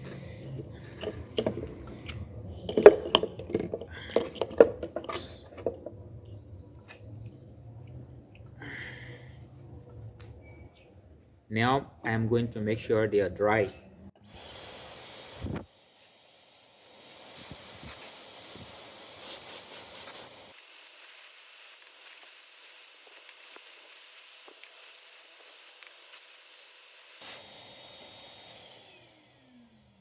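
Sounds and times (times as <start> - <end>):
compressed air hissing from blow gun: 0.0 - 5.9, 14.2 - 29.7.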